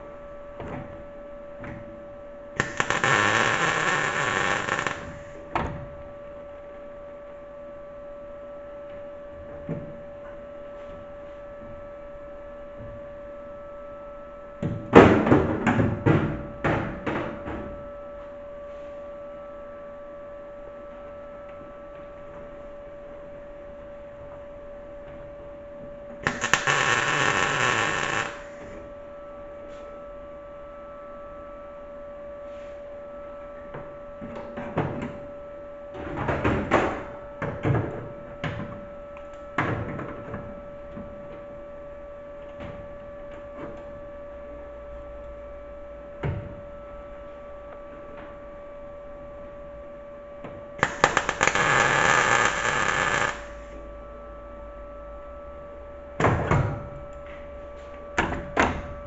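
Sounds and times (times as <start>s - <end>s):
steady hum: 2.1s - 5.6s, 23.4s - 29.7s, 48.6s - 56.2s
mig welder welding: 2.6s - 5.5s, 26.2s - 28.8s, 50.8s - 53.8s.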